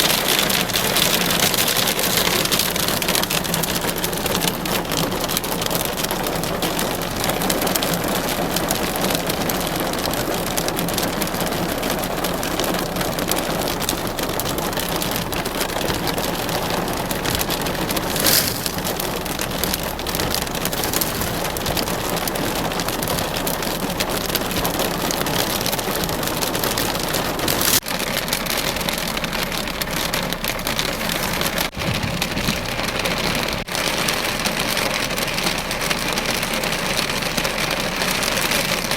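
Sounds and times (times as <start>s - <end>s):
hail and heavy rain clattering: 0.0s - 38.9s
loud hail strike: 17.5s - 23.4s.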